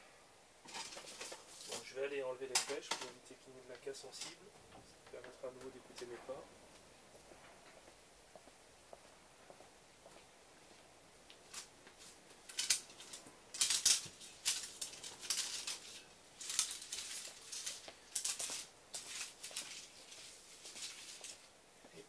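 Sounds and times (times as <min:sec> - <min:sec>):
scuffing shuffling footsteps: 0:05.1 - 0:12.4.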